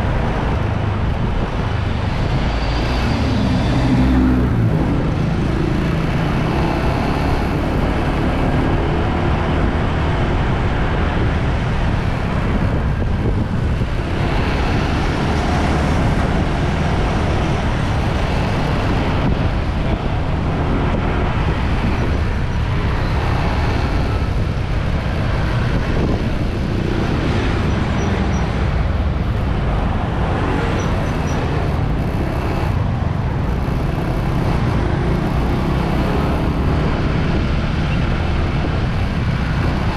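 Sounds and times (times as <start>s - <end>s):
passing traffic: 0.0s - 39.9s
wind and road noise: 0.0s - 39.9s
motorbike engine running: 26.0s - 39.9s.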